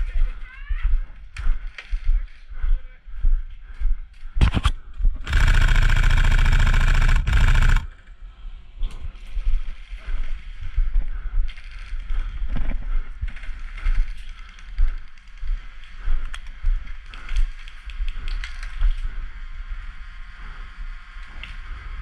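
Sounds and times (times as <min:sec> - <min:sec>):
knocks and clicks: 0:04.4 - 0:07.9
airsoft gun full-auto burst: 0:04.4 - 0:08.0.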